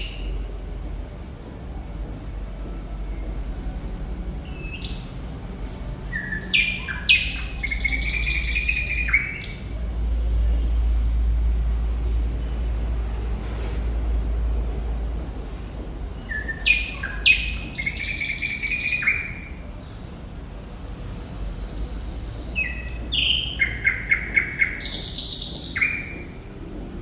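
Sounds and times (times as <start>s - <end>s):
bird singing whistles and trills: 3.2s - 9.7s, 14.8s - 19.7s, 20.6s - 26.4s.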